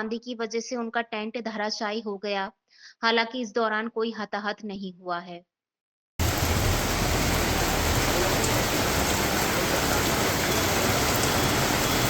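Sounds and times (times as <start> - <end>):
heavy rain pouring: 6.2 - 12.0.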